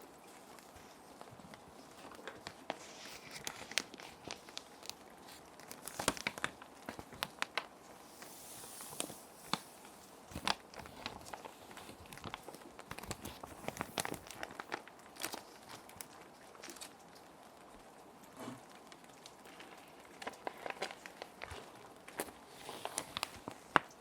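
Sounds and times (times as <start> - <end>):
plastic sheets crinkling: 0.0 - 17.8, 18.7 - 24.0
soft rain: 0.0 - 24.0.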